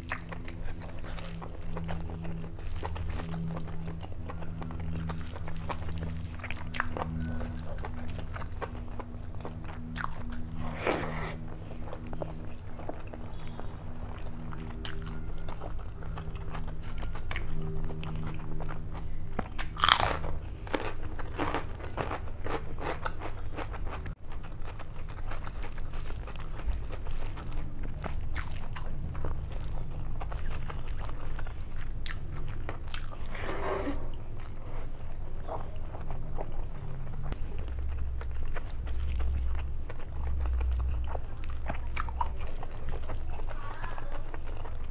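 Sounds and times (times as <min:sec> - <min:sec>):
chewing and wet mouth sounds: 0:00.0 - 0:44.9
steady low hum: 0:00.0 - 0:44.9.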